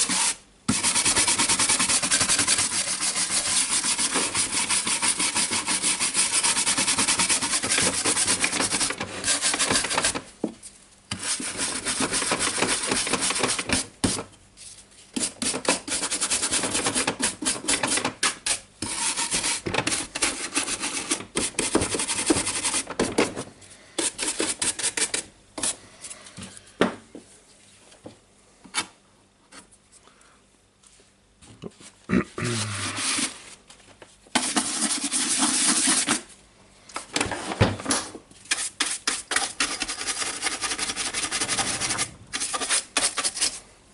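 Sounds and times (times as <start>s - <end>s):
brush scrubbing dust: 0.0s - 10.2s, 18.5s - 22.9s, 34.4s - 36.3s, 38.4s - 43.6s.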